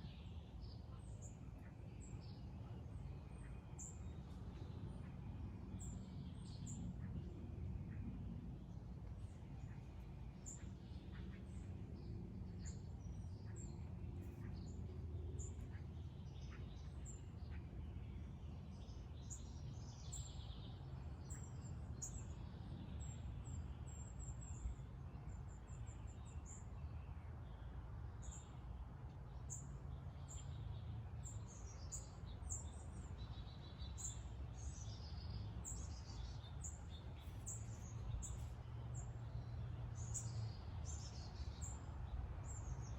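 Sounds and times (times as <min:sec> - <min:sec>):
low outdoor rumble: 0:00.0 - 0:42.9
small birds chirping: 0:09.1 - 0:42.9.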